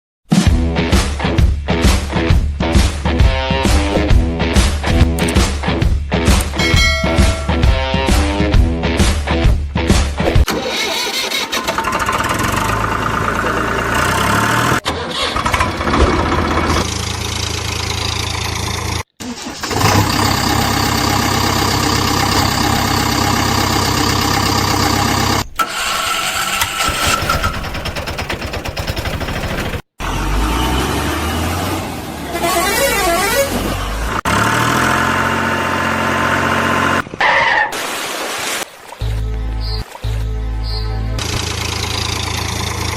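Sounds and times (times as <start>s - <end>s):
vehicle engine: 10.9s - 37.1s, 41.1s - 42.9s
vehicle horn: 32.4s - 33.6s.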